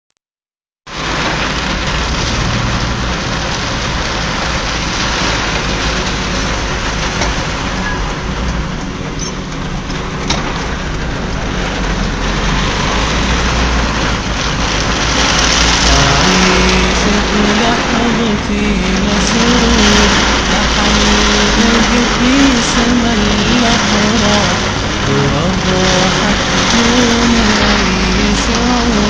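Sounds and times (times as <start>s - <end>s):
heavy rain: 0.9s - 29.0s
low rumble: 0.9s - 29.0s.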